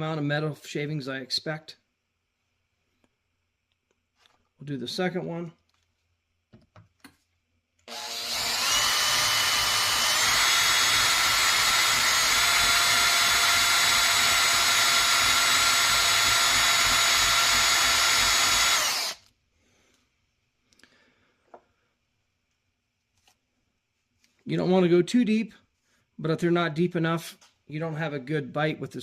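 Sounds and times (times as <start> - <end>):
cordless drill whining into steel: 7.9 - 19.3.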